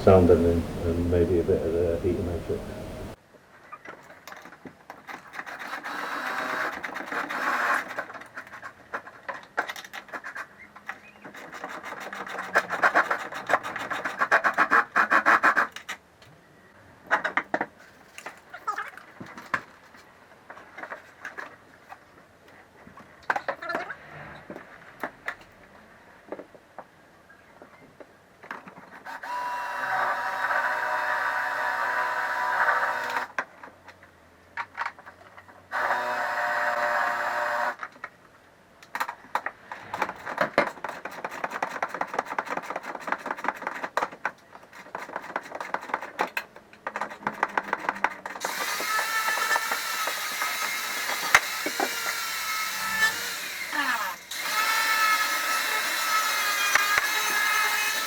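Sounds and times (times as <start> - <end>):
power drill running: 29.1 - 33.3, 35.7 - 37.8, 48.4 - 58.0
hand tools clicking and clattering: 38.9 - 49.8.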